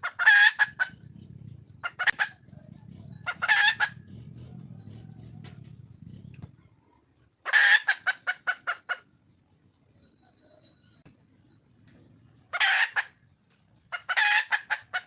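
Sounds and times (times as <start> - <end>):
junglefowl calling: 0.0 - 1.1, 1.8 - 6.2, 7.4 - 9.1, 12.5 - 13.2, 13.9 - 15.0
low steady rumble: 0.0 - 7.4
hen clucking: 0.0 - 9.2, 11.9 - 15.0.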